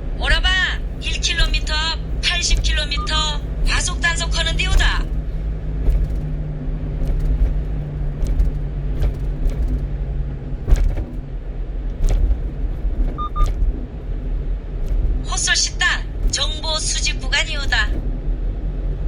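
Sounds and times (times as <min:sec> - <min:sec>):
brief thumps: 0:00.0 - 0:19.0
truck engine and road rumble: 0:00.0 - 0:19.0
short electronic beep: 0:02.9 - 0:03.2, 0:13.2 - 0:13.5.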